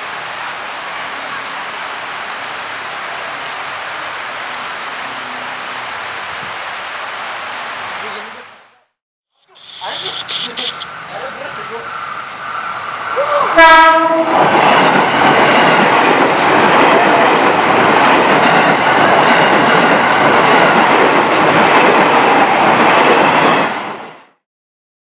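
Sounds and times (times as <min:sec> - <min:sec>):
heavy rain: 0:00.0 - 0:08.5
train horn blast: 0:13.6 - 0:14.4
train wheels on rails: 0:14.0 - 0:24.1.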